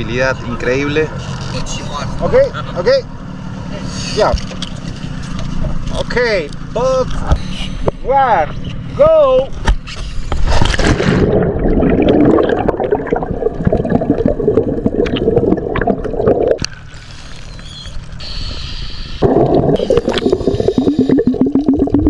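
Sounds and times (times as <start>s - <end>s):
rushing water underwater: 10.4s - 22.0s
muffled underwater bubbling: 11.2s - 16.7s, 19.2s - 22.0s
small bubble pops: 15.0s - 16.7s.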